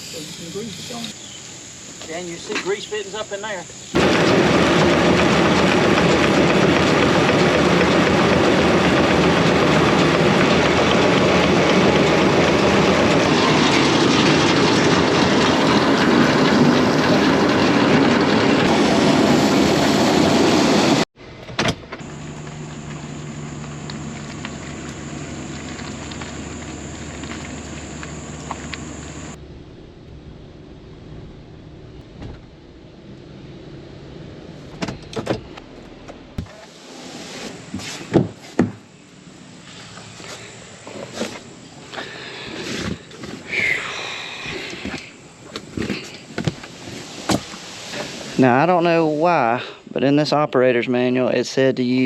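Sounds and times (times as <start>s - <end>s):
farm machinery rushing noise: 2.1s - 21.1s, 22.0s - 29.4s, 39.2s - 49.8s
engine hum with low drone: 3.7s - 38.1s, 38.8s - 50.0s.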